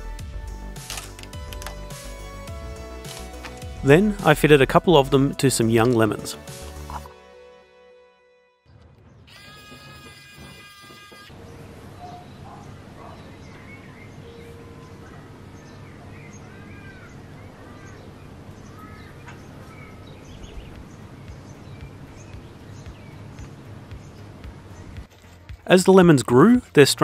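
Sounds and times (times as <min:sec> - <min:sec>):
birds chirping: 0:08.7 - 0:25.1.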